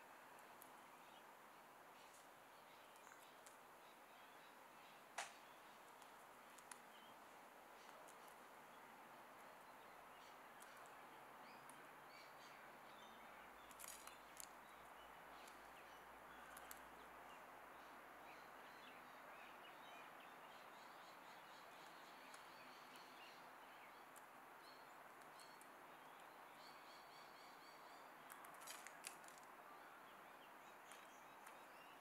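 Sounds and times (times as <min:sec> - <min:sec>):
small birds chirping: 0:00.0 - 0:32.0
birds pecking seed in a tray: 0:02.0 - 0:04.3, 0:05.2 - 0:07.2, 0:10.2 - 0:17.1, 0:25.0 - 0:26.2, 0:28.2 - 0:29.6, 0:30.7 - 0:32.0.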